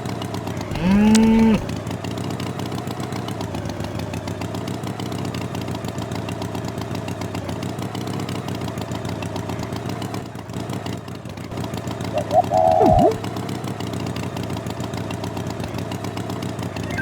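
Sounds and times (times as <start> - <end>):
engine idling: 0.4 - 1.8.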